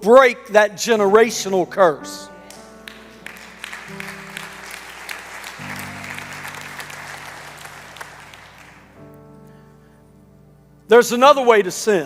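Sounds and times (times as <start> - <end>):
soft sustained chords: 1.0 - 11.7
congregation applauding: 2.4 - 9.1.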